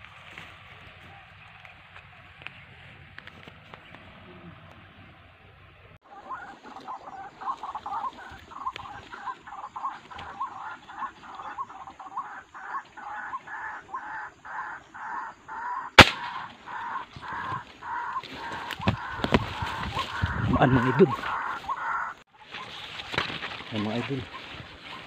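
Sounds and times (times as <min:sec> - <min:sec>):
rifle shot: 0:16.0 - 0:16.5.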